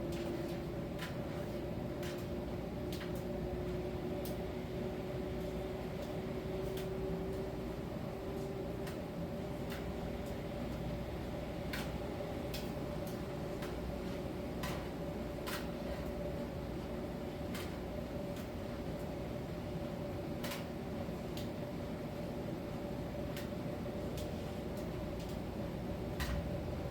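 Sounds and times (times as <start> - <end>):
light clicks and taps: 11.7 - 13.8.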